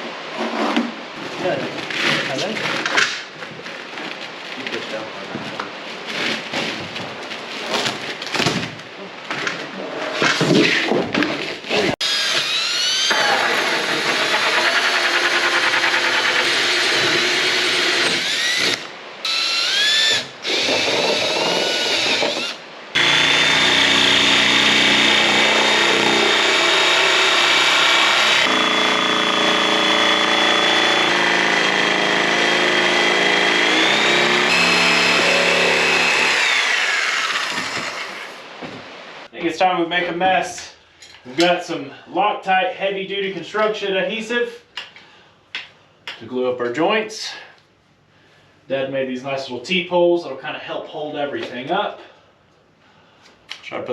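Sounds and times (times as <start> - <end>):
electric drill drilling metal: 12.0 - 38.4.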